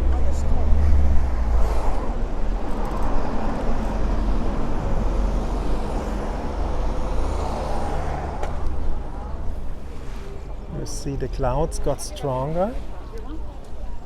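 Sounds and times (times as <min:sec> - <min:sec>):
wind rumble on microphone: 0:00.0 - 0:10.6
road noise: 0:00.0 - 0:14.0.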